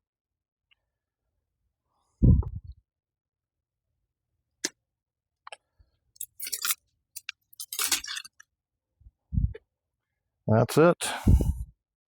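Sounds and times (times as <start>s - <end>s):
vine stems clicking: 6.2s - 8.4s.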